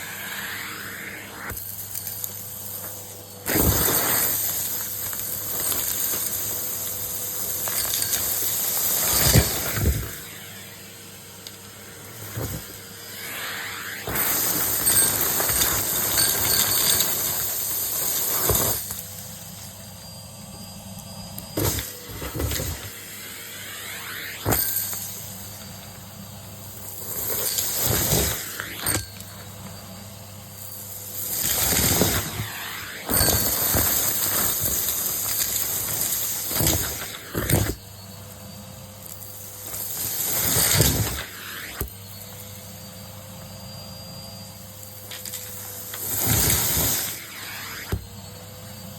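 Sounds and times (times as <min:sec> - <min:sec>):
air rushing through vacuum hose: 0:00.0 - 0:02.9, 0:08.0 - 0:19.6, 0:21.4 - 0:29.2, 0:30.6 - 0:37.4, 0:40.2 - 0:41.9, 0:46.0 - 0:48.8
vacuum cleaner running: 0:00.0 - 0:48.9.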